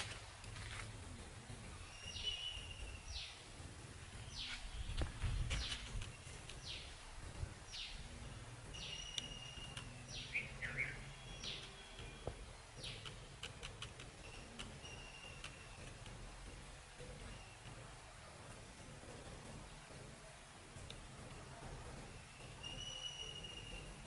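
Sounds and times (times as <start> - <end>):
low background rumble: 0.0 - 24.0
birds whistling: 1.8 - 3.4, 8.7 - 16.0, 22.2 - 24.0.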